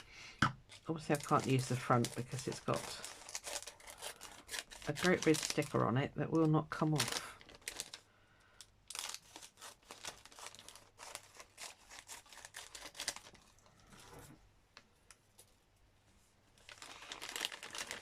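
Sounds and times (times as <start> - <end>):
crinkly packaging tearing: 0.7 - 13.9, 16.6 - 18.0.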